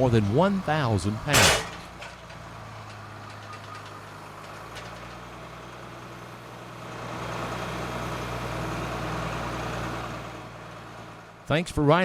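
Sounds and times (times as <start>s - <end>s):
harvester engine hum: 0.0s - 12.0s.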